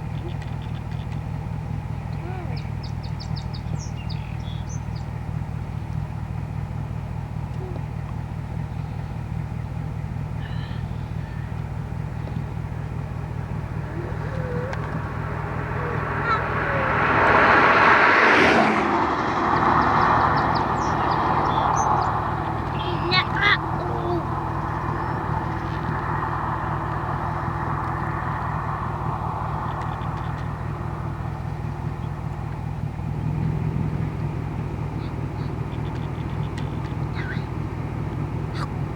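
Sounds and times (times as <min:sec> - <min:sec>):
faint bird chirps: 0:00.0 - 0:01.2, 0:02.2 - 0:05.2, 0:10.3 - 0:11.6, 0:19.7 - 0:25.9
vehicle engine idling: 0:00.0 - 0:38.9.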